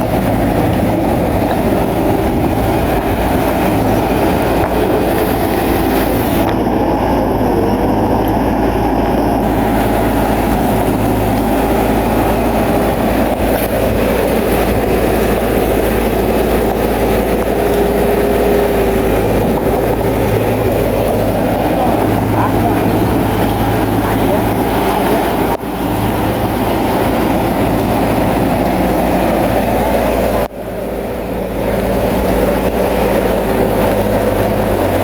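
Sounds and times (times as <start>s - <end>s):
steel tracks clattering: 0.0s - 6.7s, 9.4s - 35.0s
bulldozer diesel engine running: 0.0s - 35.0s.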